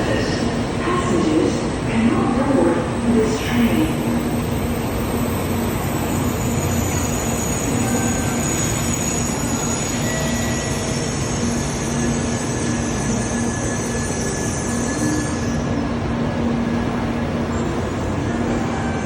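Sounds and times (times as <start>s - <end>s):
high-speed train rumble: 0.0s - 19.0s
thin high whine: 3.1s - 16.0s.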